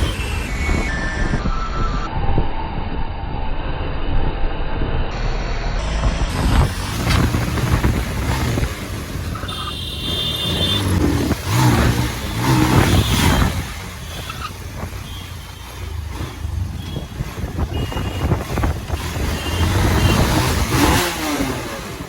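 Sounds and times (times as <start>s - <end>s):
high-pitched beeping tone: 0.0s - 2.2s
wavering engine sound: 0.0s - 16.7s
engine and road rumble: 0.0s - 22.0s.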